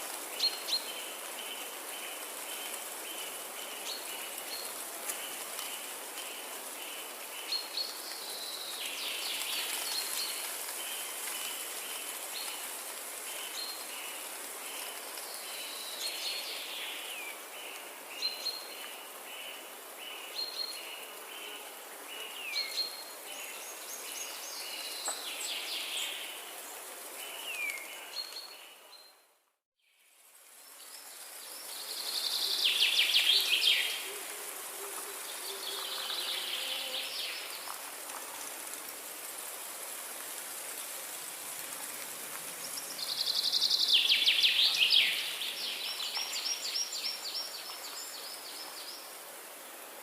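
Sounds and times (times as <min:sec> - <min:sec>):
steady background hiss: 0:00.0 - 0:29.0, 0:29.9 - 0:50.0
songbirds singing: 0:42.6 - 0:49.1.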